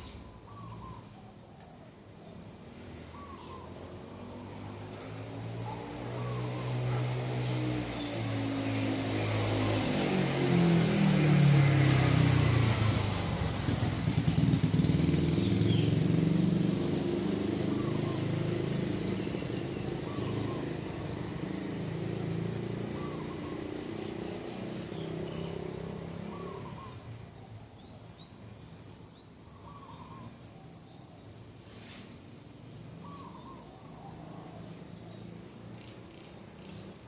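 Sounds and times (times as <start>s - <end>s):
birds chirping: 0.0s - 9.9s, 14.3s - 31.6s, 32.3s - 37.0s
vehicle engine passing: 2.6s - 27.3s
bird call: 33.0s - 34.2s.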